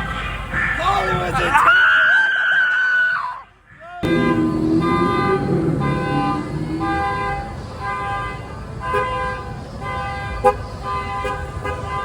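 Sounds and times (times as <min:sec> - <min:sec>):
vehicle horn honking: 0:04.0 - 0:09.3.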